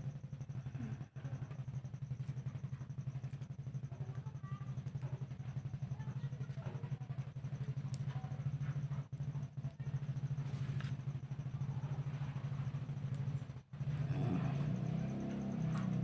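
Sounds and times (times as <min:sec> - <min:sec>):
pulsing engine-like hum: 0:00.0 - 0:16.0
faint clicks: 0:07.6 - 0:08.2.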